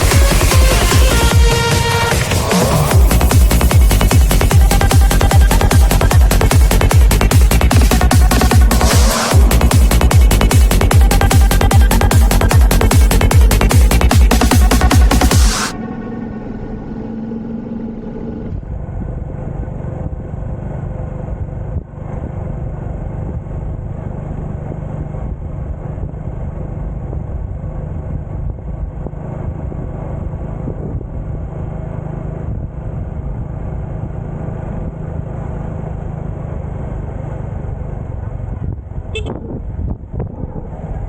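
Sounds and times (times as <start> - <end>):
electronic music: 0.0 - 17.1
wind rumble: 0.0 - 24.0, 25.3 - 34.0, 37.6 - 41.0
motorcycle engine running: 0.0 - 41.0.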